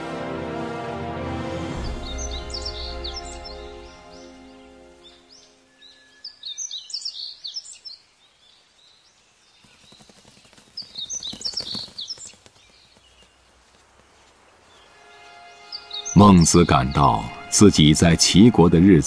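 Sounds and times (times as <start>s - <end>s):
background music: 0.0s - 6.0s, 14.8s - 19.0s
small birds chirping: 1.9s - 18.4s
soft hiss: 8.0s - 15.8s.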